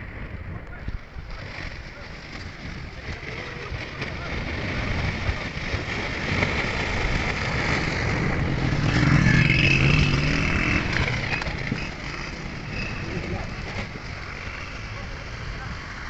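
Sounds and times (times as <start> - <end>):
floodwater rushing: 1.2 - 16.0
vehicle engine passing: 6.2 - 16.0.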